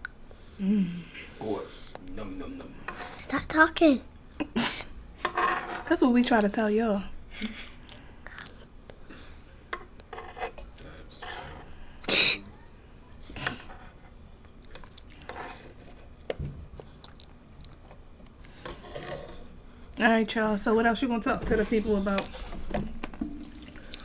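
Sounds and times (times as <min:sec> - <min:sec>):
sharp mouth burst: 0:12.1 - 0:12.4
chewing and crunching food: 0:14.6 - 0:18.6.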